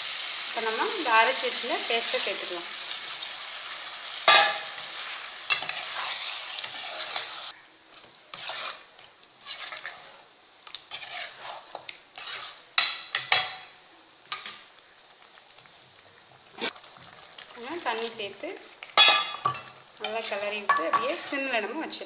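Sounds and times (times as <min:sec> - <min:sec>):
paste sizzling in hot pan: 0:00.0 - 0:22.0
spoon scraping and clinking pan: 0:04.3 - 0:04.8, 0:05.5 - 0:10.1, 0:10.9 - 0:14.6, 0:19.0 - 0:21.5.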